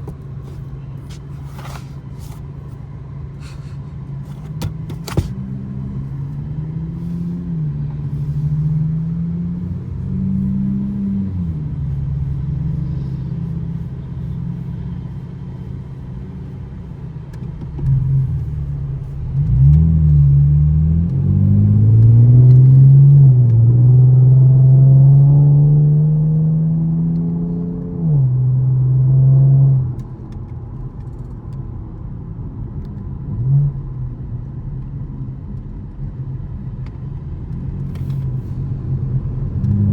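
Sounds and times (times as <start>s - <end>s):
car engine revving through gears: 4.8s - 13.1s, 17.8s - 30.0s, 39.0s - 39.9s.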